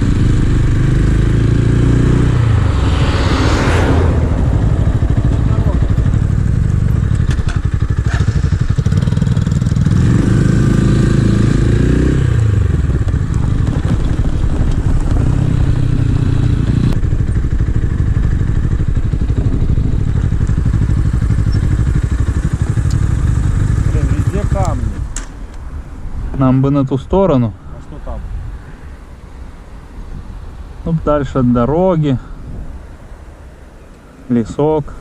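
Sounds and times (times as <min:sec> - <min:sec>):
motorcycle engine revving: 0:00.0 - 0:25.2.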